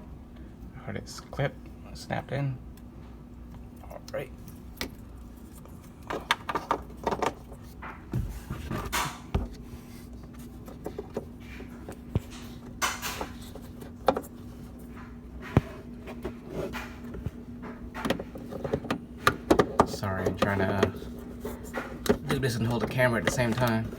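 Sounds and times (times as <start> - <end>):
plastic parts scraping: 5.4 - 23.9.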